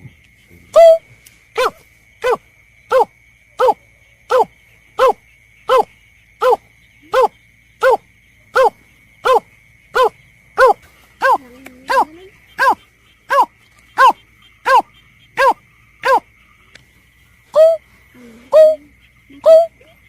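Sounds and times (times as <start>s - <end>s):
snipe call: 0.8s - 1.0s, 1.6s - 8.0s, 10.0s - 16.2s, 17.6s - 17.9s, 18.5s - 20.0s.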